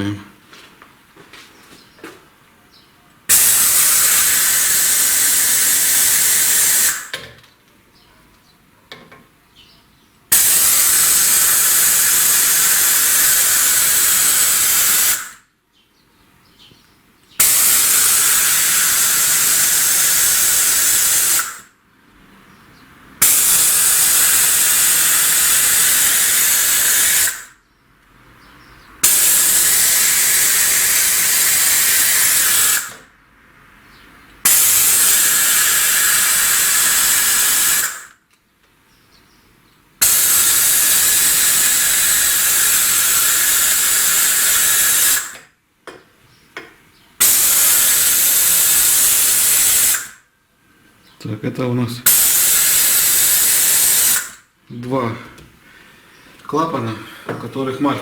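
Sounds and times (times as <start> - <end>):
compressed air hissing: 3.3 - 7.1, 10.3 - 15.4, 17.4 - 21.7, 23.2 - 27.6, 29.0 - 33.1, 34.4 - 38.2, 40.0 - 45.4, 47.2 - 50.2, 52.0 - 54.5.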